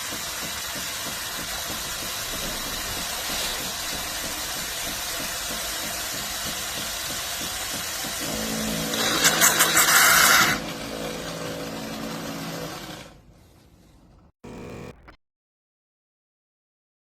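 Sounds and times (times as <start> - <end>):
espresso machine hissing: 0.0 - 13.1.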